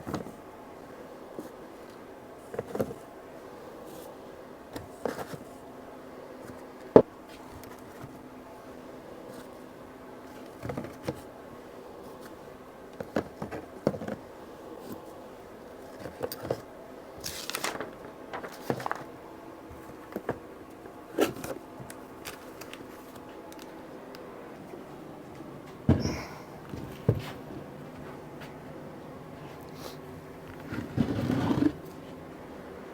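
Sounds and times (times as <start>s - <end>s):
steady low hum: 0.0s - 32.9s
rustling: 17.2s - 19.2s.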